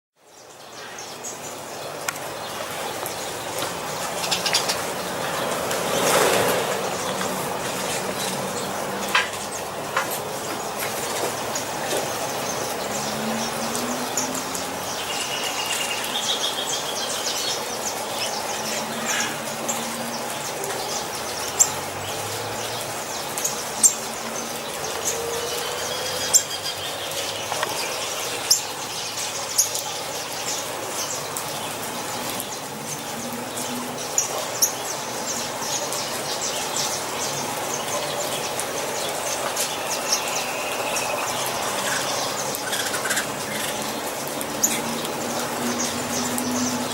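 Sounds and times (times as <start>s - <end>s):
songbirds chirping: 0.2s - 46.9s.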